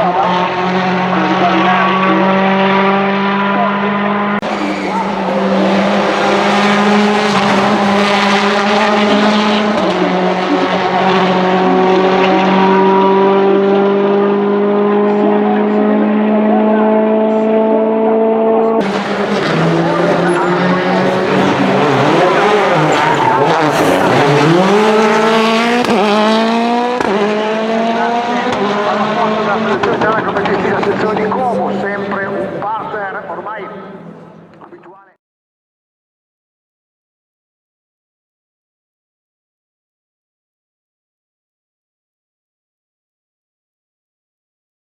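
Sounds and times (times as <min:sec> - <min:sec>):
rally car engine running hard: 0:00.0 - 0:32.7
gear change crack: 0:18.8 - 0:27.3.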